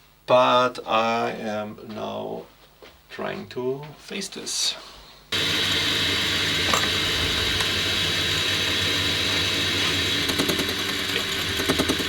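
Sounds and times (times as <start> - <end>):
metal lathe whining: 5.4 - 12.0.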